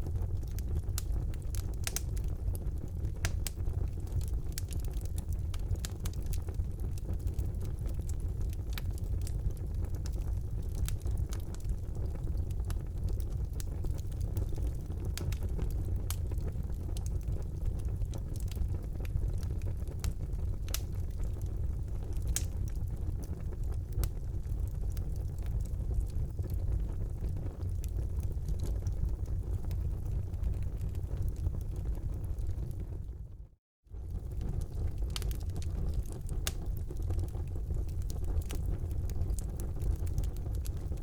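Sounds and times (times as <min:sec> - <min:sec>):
burning logs crackling and popping: 0:00.0 - 0:33.2, 0:34.0 - 0:41.0
low rumble of flames: 0:00.0 - 0:41.0.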